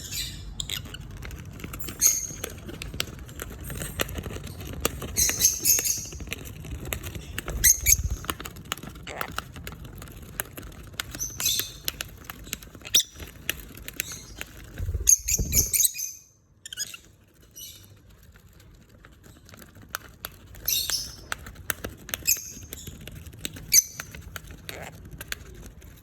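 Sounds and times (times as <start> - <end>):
birds shredding with beaks: 0.4 - 16.0, 16.9 - 26.0.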